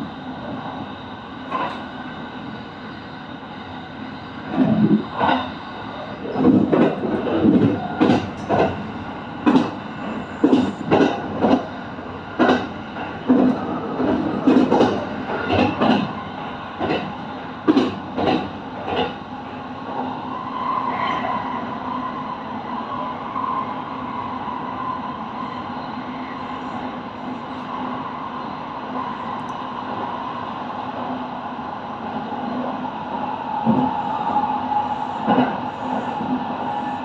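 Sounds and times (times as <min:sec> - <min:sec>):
train running noise: 0:00.0 - 0:37.0
train wheels clacking over rail joints: 0:06.2 - 0:11.7, 0:12.4 - 0:16.2, 0:16.8 - 0:19.2.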